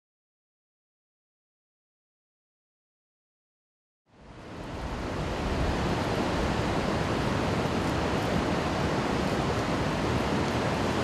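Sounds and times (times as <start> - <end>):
water rushing: 4.1 - 11.0.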